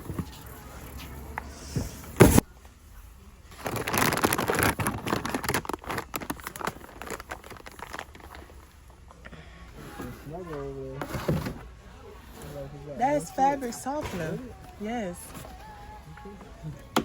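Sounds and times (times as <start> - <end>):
plastic bags rustling and crinkling: 3.4 - 8.8.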